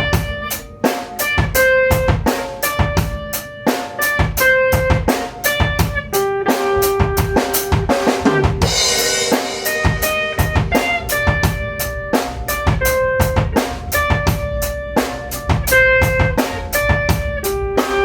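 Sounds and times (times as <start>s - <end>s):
drum kit rhythm: 0.0s - 18.0s
held melodic notes: 0.0s - 18.0s
cymbal crash: 8.2s - 18.0s.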